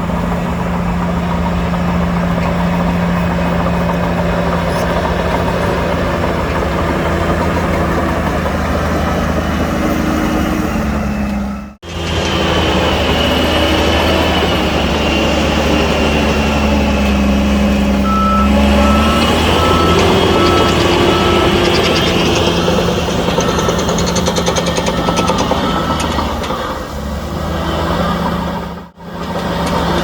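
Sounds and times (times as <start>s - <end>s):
diesel earthmoving machinery running: 0.0s - 30.0s
reversing alarm beeps: 10.4s - 11.8s, 18.0s - 26.4s.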